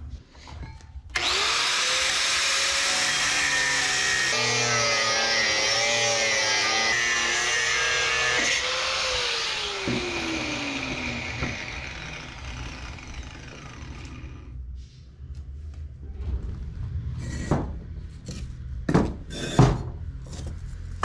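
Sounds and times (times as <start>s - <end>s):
power tool grinding metal: 1.2s - 14.5s
motor spinning down: 9.5s - 14.5s.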